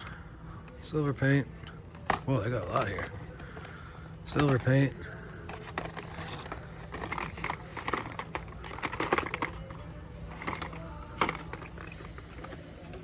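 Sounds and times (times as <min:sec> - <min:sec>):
steady low hum: 0:00.0 - 0:13.0
plastic blister packs clicking: 0:05.4 - 0:13.0.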